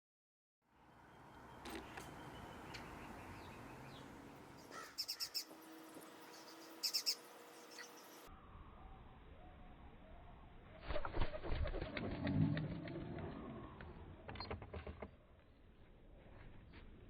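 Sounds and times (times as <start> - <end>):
birds chirping: 0.9 - 10.6.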